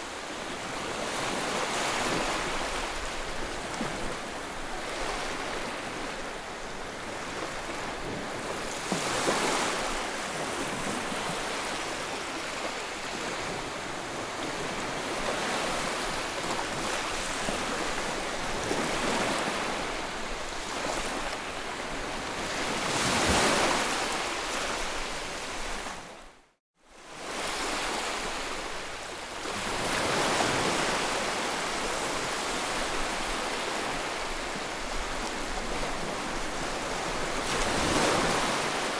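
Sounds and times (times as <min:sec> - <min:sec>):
waves breaking on shore: 0:00.0 - 0:38.9.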